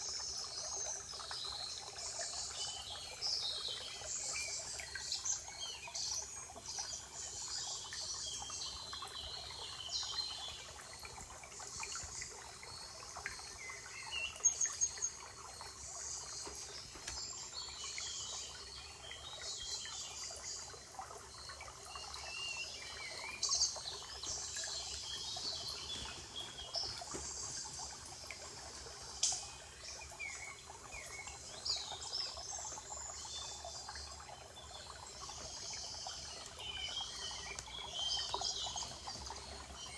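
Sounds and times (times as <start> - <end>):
forest birds chirping: 0.0 - 39.9.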